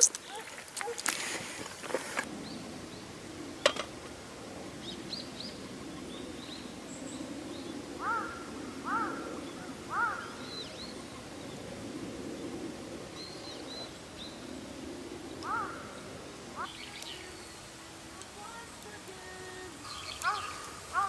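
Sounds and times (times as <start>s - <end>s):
birds chirping: 0.0s - 21.0s
bird arched calls: 8.0s - 11.0s, 15.4s - 18.4s, 19.3s - 21.0s.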